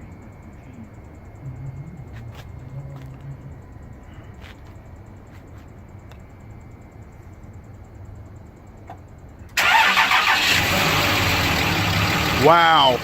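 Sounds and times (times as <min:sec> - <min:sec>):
faint low rumble: 0:00.0 - 0:09.4
diesel engine starting and idling: 0:09.6 - 0:13.0.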